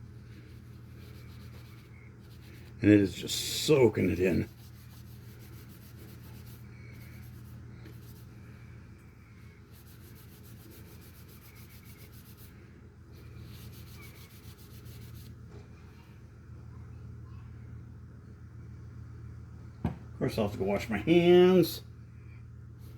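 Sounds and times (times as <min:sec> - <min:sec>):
hand rubbing wooden handle: 0:00.0 - 0:08.7, 0:09.6 - 0:12.6, 0:13.2 - 0:15.3.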